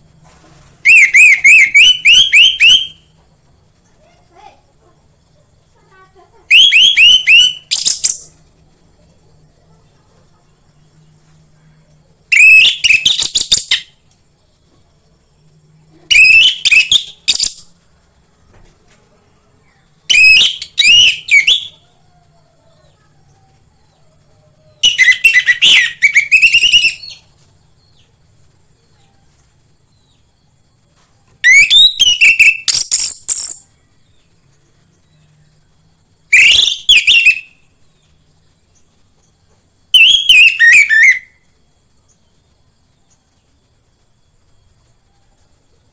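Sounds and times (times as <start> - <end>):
faint high-pitched hiss: 0.0 - 45.9
thrush singing whistled phrases: 0.8 - 3.1, 6.5 - 8.3, 12.3 - 14.0, 16.1 - 17.7, 20.1 - 21.9, 24.7 - 27.3, 31.4 - 33.7, 36.3 - 37.7, 39.9 - 41.5.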